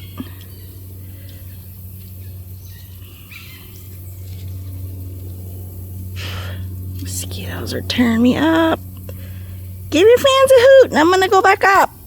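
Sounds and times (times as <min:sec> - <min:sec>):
low hum: 0:00.0 - 0:12.0
faint bird chirps: 0:01.4 - 0:03.9.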